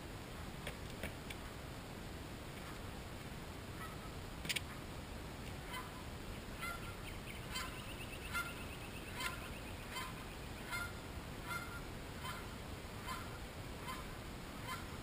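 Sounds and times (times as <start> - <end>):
bird short sharp calls: 6.6 - 12.5.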